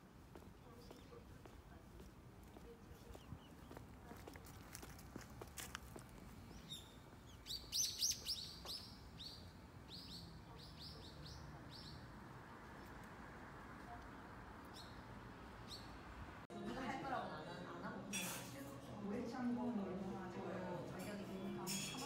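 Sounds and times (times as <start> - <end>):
faint street hum: 0.0 - 22.0
small birds chirping: 0.4 - 4.9, 5.9 - 13.2, 13.8 - 16.2.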